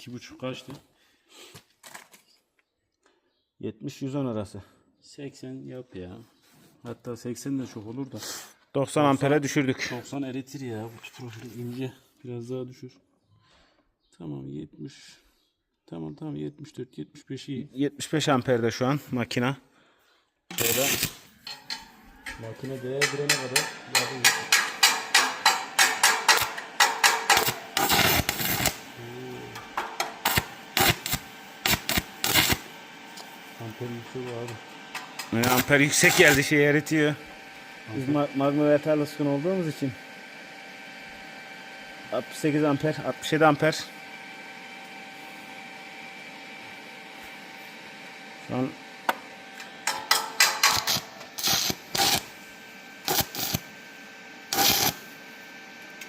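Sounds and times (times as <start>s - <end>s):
metal scraping: 20.5s - 28.8s
welding arc crackling: 20.5s - 40.2s, 49.5s - 56.0s.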